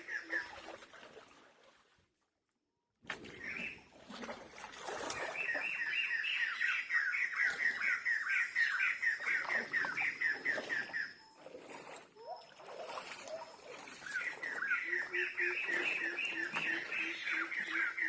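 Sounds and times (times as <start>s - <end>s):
bird chirping: 5.2s - 11.5s, 13.2s - 18.0s.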